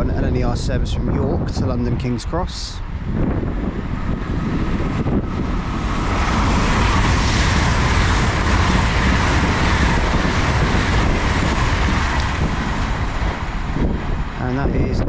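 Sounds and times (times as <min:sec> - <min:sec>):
train passing at speed: 0:00.0 - 0:15.0
wind buffeting microphone: 0:00.0 - 0:15.0.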